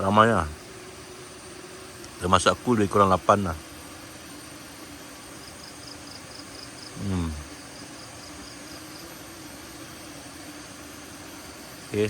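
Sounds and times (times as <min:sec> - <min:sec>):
steady background hiss: 0:00.0 - 0:12.0
high-pitched insect chirping: 0:04.2 - 0:12.0.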